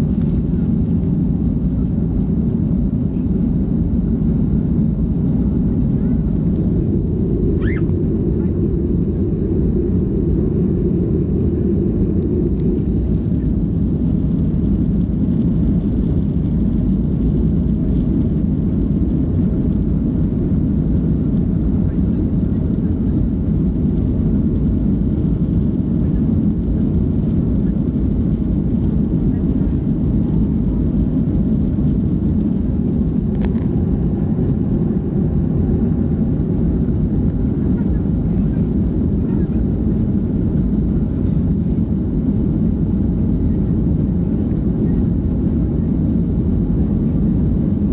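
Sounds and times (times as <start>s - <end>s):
faint high whine: 0.0s - 47.9s
jet engines rumbling in cabin: 0.0s - 47.9s
rushing air: 5.5s - 14.0s
faint high sound: 6.0s - 10.8s.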